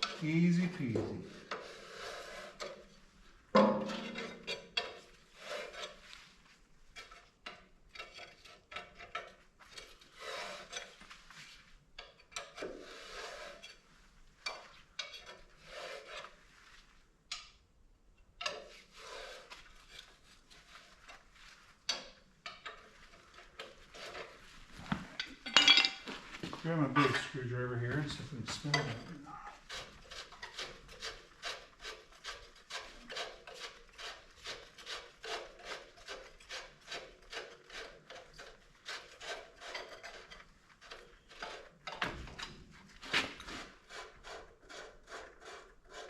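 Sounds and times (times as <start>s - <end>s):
metal parts scraping and clinking: 25.0s - 26.1s.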